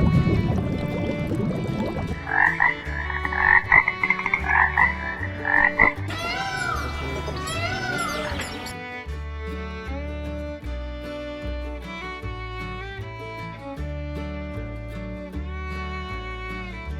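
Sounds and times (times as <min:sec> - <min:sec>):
background music: 0:00.1 - 0:16.9
animal pulsed calls: 0:01.7 - 0:08.7.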